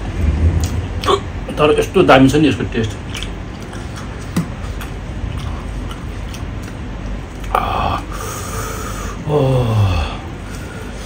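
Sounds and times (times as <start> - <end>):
chewing and wet mouth noises: 2.8 - 7.6.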